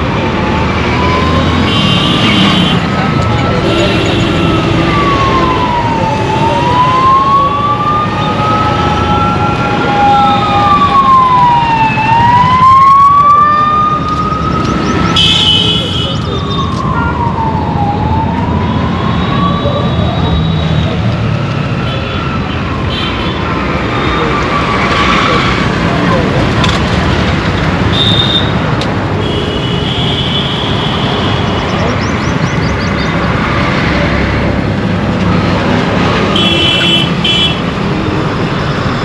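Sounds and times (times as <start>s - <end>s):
emergency siren wailing: 0.0s - 26.6s
road traffic noise: 0.0s - 39.0s.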